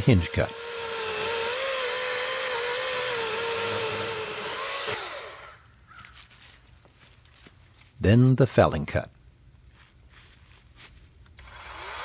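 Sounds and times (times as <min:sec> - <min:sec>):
electric chainsaw cutting wood: 0:00.0 - 0:05.6, 0:11.4 - 0:12.0.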